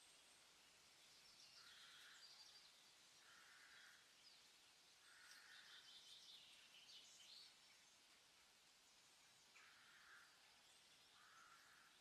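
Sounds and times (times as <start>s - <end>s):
faint bird chirping: 0.0s - 12.0s
low outdoor hiss: 0.0s - 12.0s.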